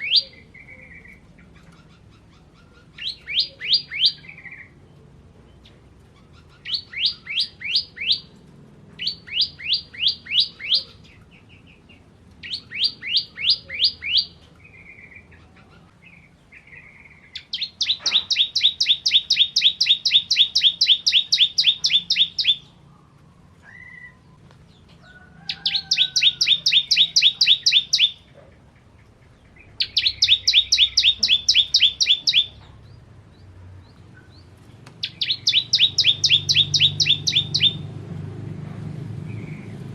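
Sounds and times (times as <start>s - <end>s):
soft bird chirps: 0.0s - 8.4s, 9.0s - 37.9s
fast rattling bird trills: 12.4s - 22.8s, 25.5s - 32.6s, 34.3s - 38.0s
bird singing sharp high notes: 16.6s - 22.7s, 25.7s - 28.3s, 29.8s - 32.6s, 35.0s - 37.9s.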